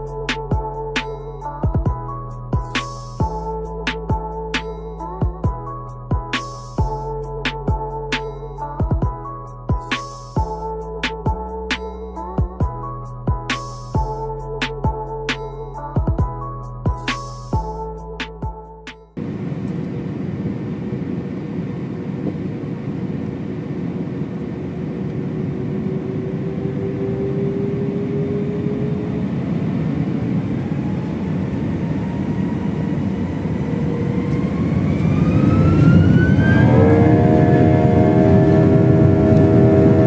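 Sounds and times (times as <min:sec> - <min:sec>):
jet engines roaring: 0:19.2 - 0:40.0.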